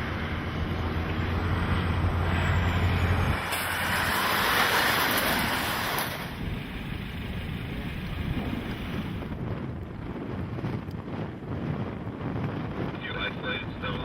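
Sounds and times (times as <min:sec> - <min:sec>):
low drone: 0:00.0 - 0:09.3
road and wind noise: 0:00.0 - 0:14.0.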